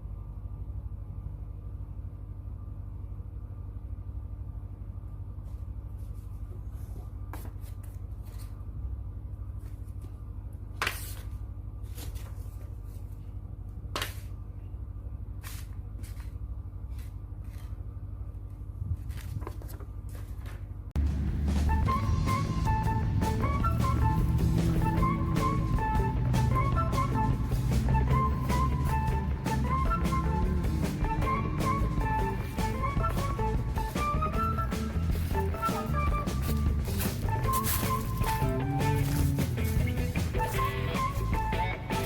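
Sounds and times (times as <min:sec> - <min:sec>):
steady low hum: 0:00.0 - 0:42.0
music: 0:21.0 - 0:42.0
paper crackling: 0:30.7 - 0:41.5.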